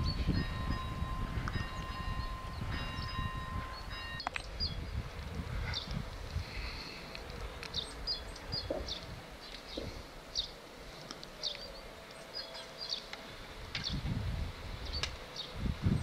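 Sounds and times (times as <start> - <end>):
small birds chirping: 5.6 - 14.1, 14.8 - 16.0.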